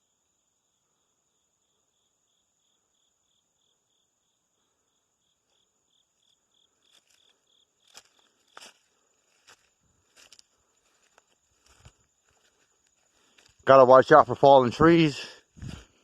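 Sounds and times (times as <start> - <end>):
insects trilling and chirping: 0.0 - 16.0
footsteps on forest floor: 6.8 - 16.0.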